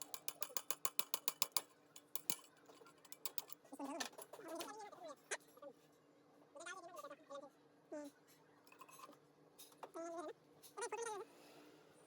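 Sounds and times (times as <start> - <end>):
rapid sharp mechanical clicking: 0.0 - 2.5.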